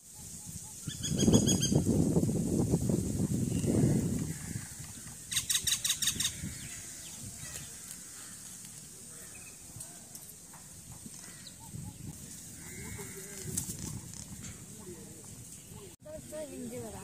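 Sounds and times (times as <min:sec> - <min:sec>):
harsh rattling bird notes: 0:03.2 - 0:09.7
faint bird calls: 0:03.4 - 0:16.0.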